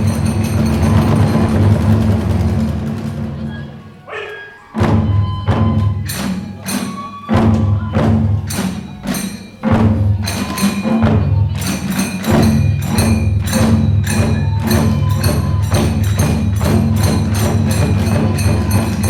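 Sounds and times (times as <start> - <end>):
hand cymbals clashing: 0.0 - 2.6, 5.7 - 19.0
big drum beating fast rhythm: 0.0 - 3.6, 4.8 - 19.0
small drums: 0.0 - 4.1, 4.7 - 19.0
bamboo flute playing: 3.4 - 9.1, 14.1 - 17.2.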